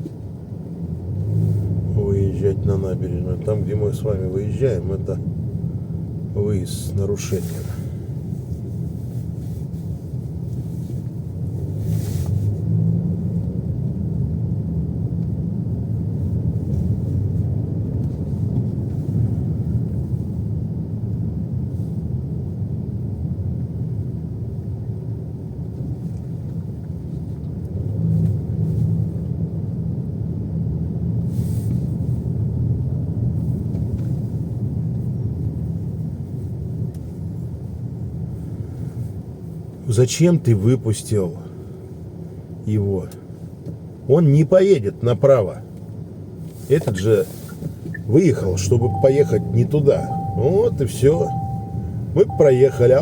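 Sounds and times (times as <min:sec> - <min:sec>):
tyre road noise: 0:00.0 - 0:21.0, 0:41.3 - 0:53.0
car engine rumble: 0:00.0 - 0:53.0.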